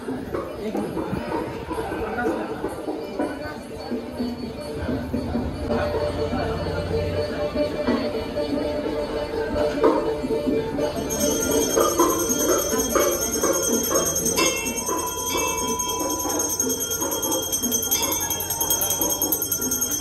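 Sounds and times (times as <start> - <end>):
crowd murmuring: 0.0 - 20.0
temple bells clanging: 10.8 - 20.0.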